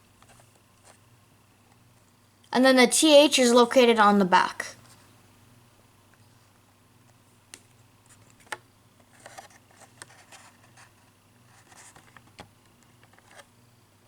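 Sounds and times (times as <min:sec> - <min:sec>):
plastic packaging clicks and rustles: 0:08.2 - 0:13.5.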